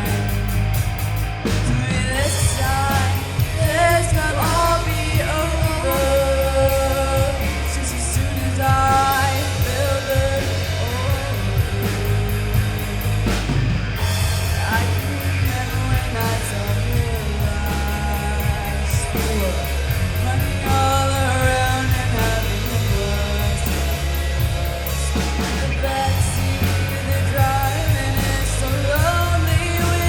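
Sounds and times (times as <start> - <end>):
bass guitar: 0.0 - 30.0
drums and cymbals: 0.0 - 30.0
electric guitar: 0.0 - 30.0
person singing: 1.7 - 13.5, 14.4 - 30.0.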